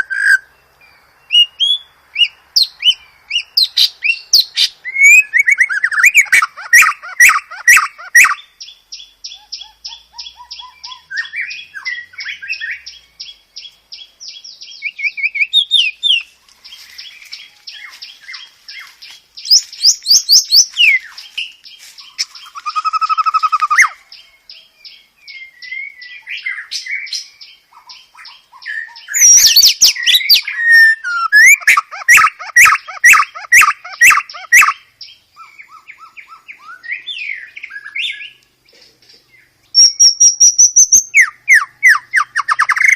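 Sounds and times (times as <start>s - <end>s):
songbird singing: 0.0s - 42.9s.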